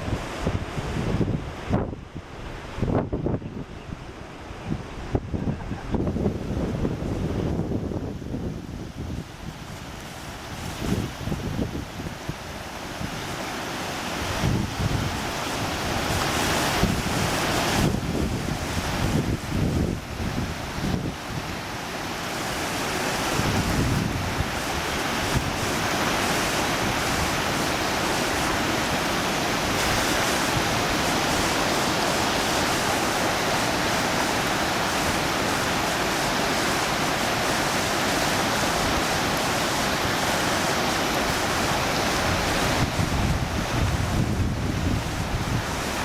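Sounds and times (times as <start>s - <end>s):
wind buffeting microphone: 0.0s - 13.4s, 14.1s - 37.0s, 38.3s - 46.0s
fast-flowing river water: 0.0s - 46.0s.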